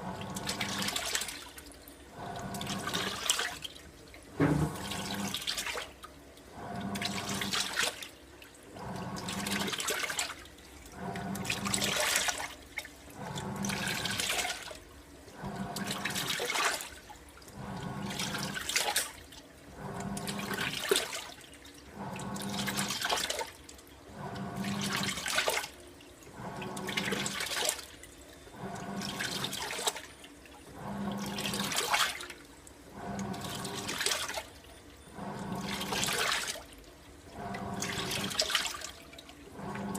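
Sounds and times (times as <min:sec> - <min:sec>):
washer churning water: 0:00.0 - 0:39.9
washer motor hum: 0:00.0 - 0:39.9.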